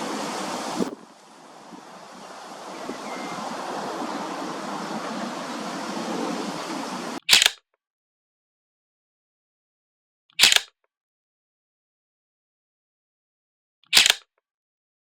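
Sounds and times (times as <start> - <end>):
rushing outdoor noise: 0.0 - 7.2.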